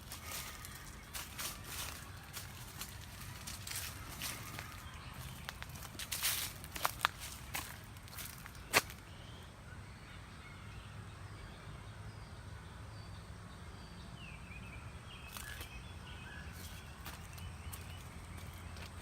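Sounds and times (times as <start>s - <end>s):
footsteps on trail: 0.0s - 9.1s, 15.3s - 15.8s, 16.4s - 19.0s
low outdoor rumble: 0.0s - 9.5s
faint birdsong: 0.0s - 19.0s.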